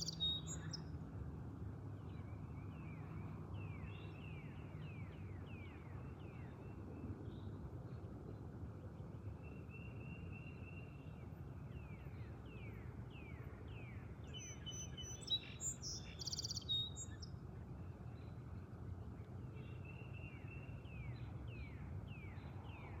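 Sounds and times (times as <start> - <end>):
birds singing whistles and trills: 0.0 - 0.9, 11.8 - 17.3.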